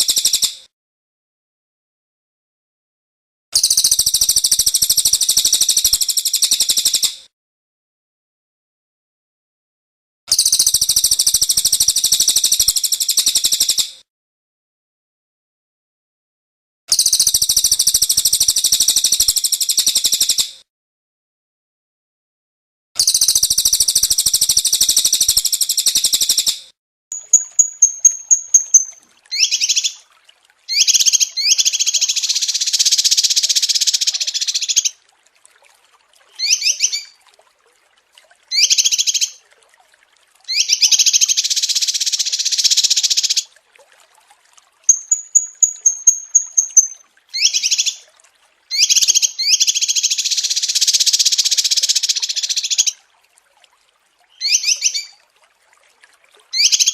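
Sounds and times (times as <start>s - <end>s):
songbirds singing buzzy trills: 23.0s - 30.0s, 30.7s - 34.9s, 36.4s - 37.2s, 38.5s - 39.4s, 40.5s - 43.5s, 44.9s - 48.1s, 48.7s - 52.9s, 54.3s - 55.2s, 56.5s - 56.9s.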